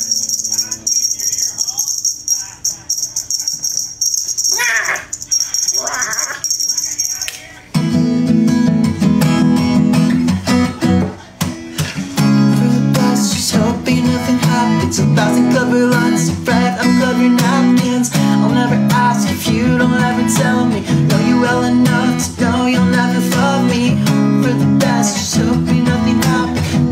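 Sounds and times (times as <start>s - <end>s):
guitar strumming chords: 7.7s - 26.9s.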